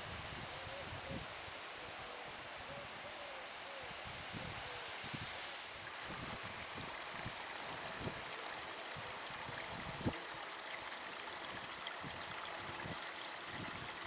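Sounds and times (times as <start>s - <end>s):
running water: 5.1s - 14.0s
wind thumping on microphone: 9.0s - 10.2s.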